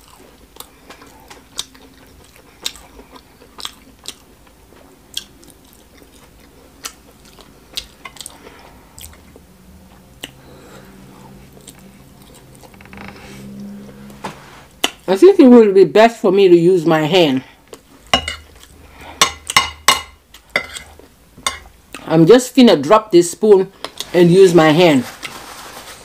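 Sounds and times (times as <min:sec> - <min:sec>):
person chewing food: 0:00.0 - 0:12.8, 0:17.6 - 0:22.1
low steady hum: 0:00.0 - 0:25.9.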